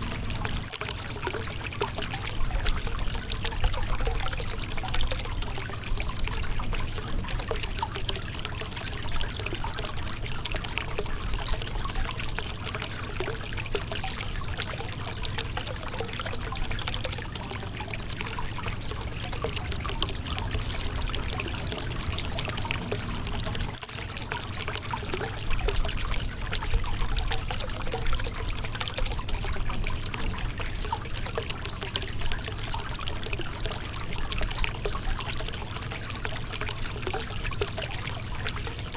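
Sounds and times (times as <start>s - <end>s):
river water splashing over rocks: 14.4s - 33.7s.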